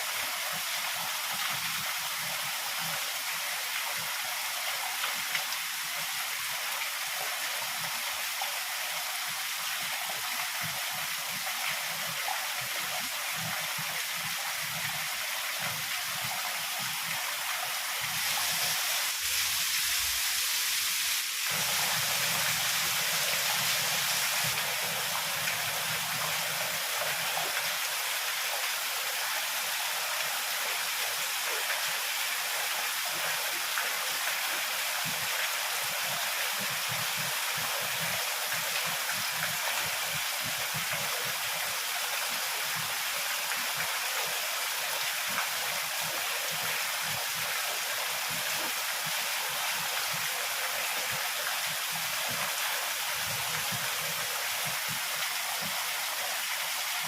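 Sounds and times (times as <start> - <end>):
heavy rain pouring: 12.0 - 57.0.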